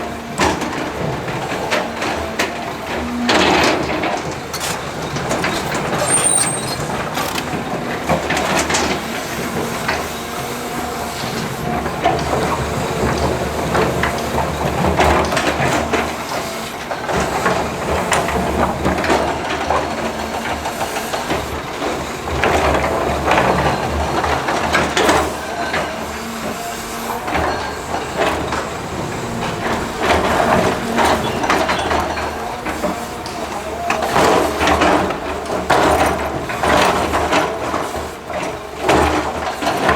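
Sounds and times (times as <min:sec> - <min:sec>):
rock and metal clattering: 0:00.9 - 0:08.9, 0:27.2 - 0:33.2
diesel engine running: 0:27.1 - 0:36.5.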